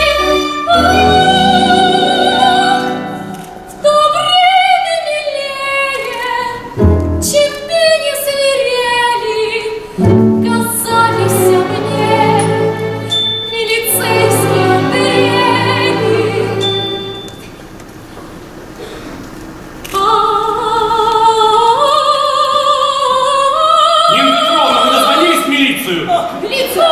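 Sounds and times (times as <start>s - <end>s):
woman singing with vibrato: 0.0s - 17.3s, 19.9s - 25.5s, 26.1s - 26.9s
instrumental accompaniment: 10.0s - 18.1s.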